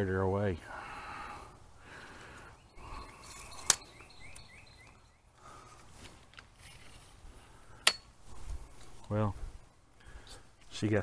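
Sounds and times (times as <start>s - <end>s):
small bird chirping: 1.9s - 5.8s.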